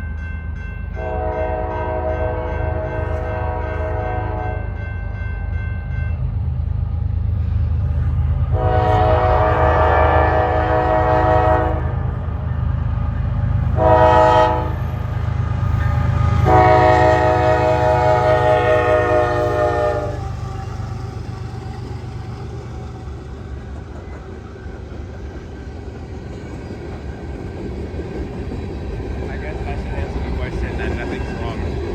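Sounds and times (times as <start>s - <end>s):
freight train rumble: 0.0s - 31.9s
locomotive air horn: 1.0s - 4.8s, 8.5s - 12.0s, 13.8s - 14.9s, 16.4s - 20.3s.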